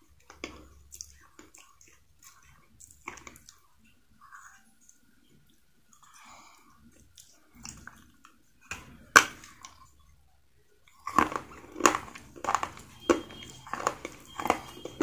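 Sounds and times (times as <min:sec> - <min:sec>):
soft chewing: 0:00.0 - 0:15.0
clay crunching: 0:11.0 - 0:15.0.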